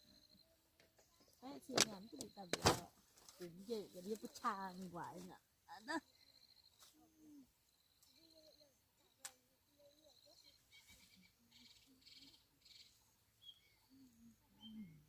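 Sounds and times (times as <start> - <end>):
faint high chirps: 5.7 - 15.0.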